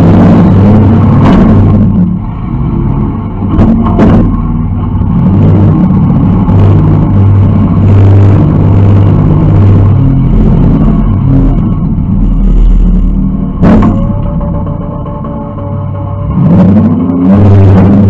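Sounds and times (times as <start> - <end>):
car engine revving: 0.0 - 18.0
sharp knocks: 13.6 - 15.4.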